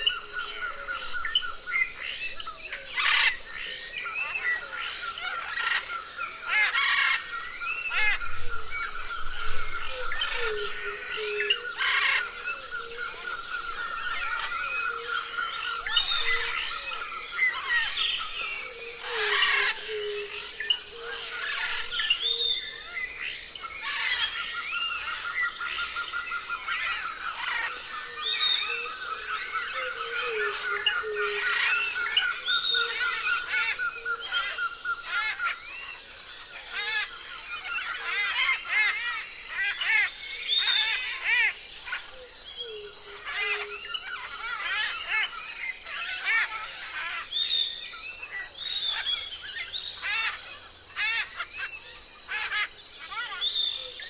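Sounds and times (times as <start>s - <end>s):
parrots chirping and chattering: 2.9s - 3.4s, 4.3s - 7.3s, 11.8s - 12.4s, 17.5s - 22.0s, 30.5s - 35.6s, 36.6s - 42.1s, 42.9s - 47.2s, 49.9s - 54.0s.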